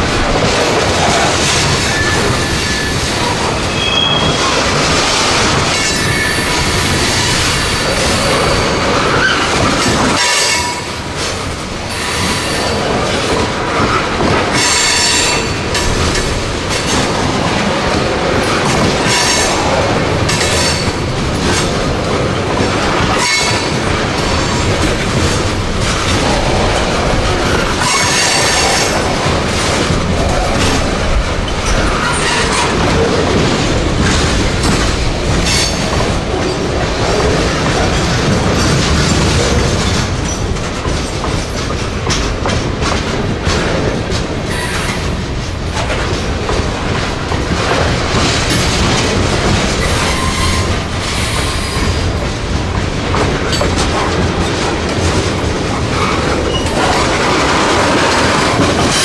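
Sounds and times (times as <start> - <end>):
train rumbling on rails: 0.0 - 59.0
metal wheel squeal: 3.7 - 4.4.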